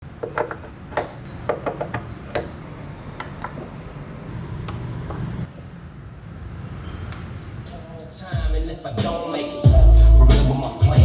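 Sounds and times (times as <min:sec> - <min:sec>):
sharp knocks and clicks: 0:00.2 - 0:03.6.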